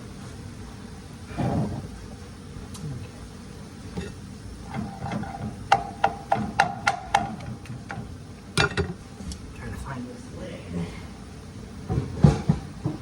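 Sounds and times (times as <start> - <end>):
metal pots and lids clattering: 4.0 - 7.5, 8.6 - 9.0.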